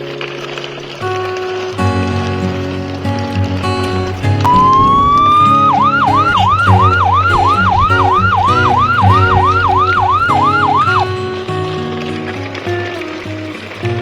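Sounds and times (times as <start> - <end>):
background music: 1.9 - 14.0
siren wailing: 4.4 - 11.4.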